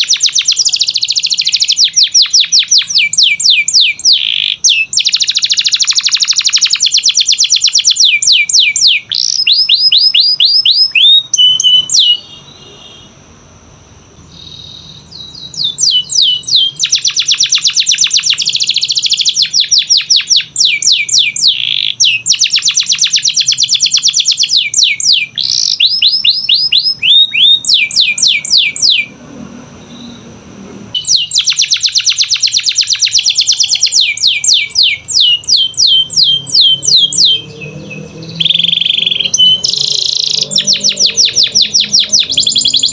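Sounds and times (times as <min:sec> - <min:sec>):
canary singing trills: 0:00.0 - 0:13.2, 0:14.2 - 0:29.2, 0:29.8 - 0:42.9.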